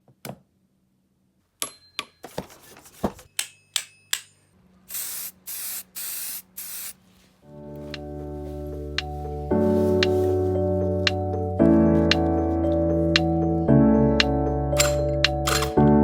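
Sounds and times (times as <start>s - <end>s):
aerosol spray can hissing: 4.9s - 7.0s
music: 7.4s - 16.0s
metallic clicks: 14.2s - 15.8s.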